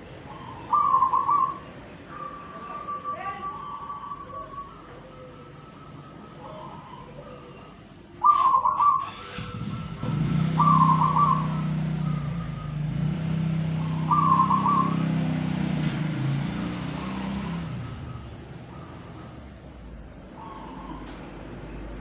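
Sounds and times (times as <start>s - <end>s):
songbird chattering calls: 0.1s - 4.8s, 10.6s - 12.6s, 13.7s - 15.1s
vehicle engine humming: 9.1s - 22.0s.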